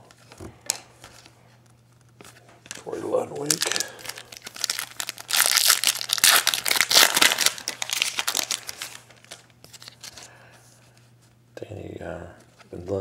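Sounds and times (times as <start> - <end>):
wrapper crinkling and tearing: 3.4 - 10.3.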